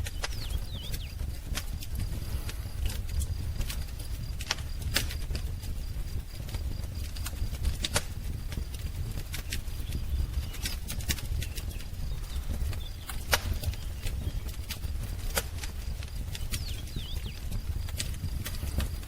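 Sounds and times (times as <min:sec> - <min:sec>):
low fire rumble: 0:00.0 - 0:19.0
wood fire crackling and popping: 0:00.0 - 0:19.0.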